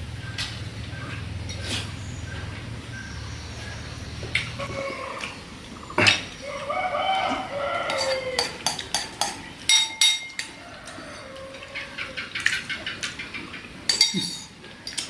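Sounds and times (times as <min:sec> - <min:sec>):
rooster crowing: 0:06.4 - 0:08.6, 0:10.4 - 0:12.2
spoon clinking ceramic bowls: 0:07.8 - 0:11.4, 0:13.9 - 0:15.0.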